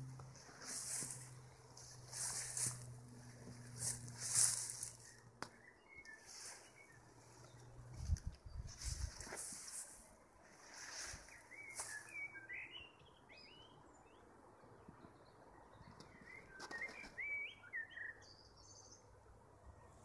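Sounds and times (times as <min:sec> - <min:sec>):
songbird chirping: 0:00.0 - 0:20.0
soft rustles: 0:00.2 - 0:05.2, 0:06.2 - 0:12.2.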